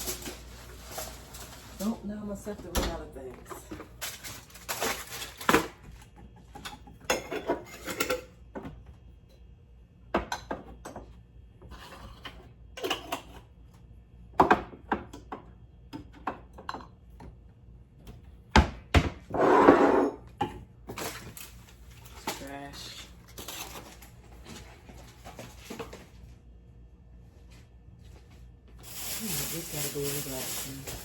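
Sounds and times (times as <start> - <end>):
containers and utensils handled: 28.8 - 31.0.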